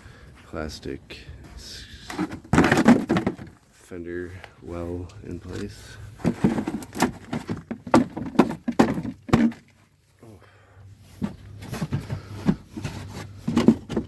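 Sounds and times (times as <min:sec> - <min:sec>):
plastic knocking and scraping on car: 0:02.1 - 0:03.6, 0:06.2 - 0:09.8, 0:11.2 - 0:14.0.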